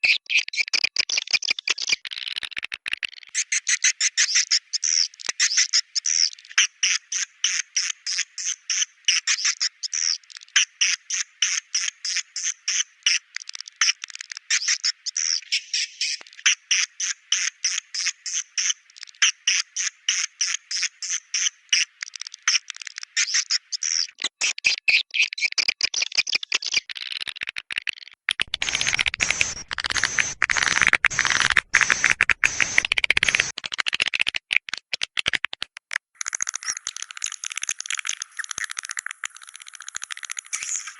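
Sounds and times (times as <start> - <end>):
swiftlet chirps: 28.5 - 33.6.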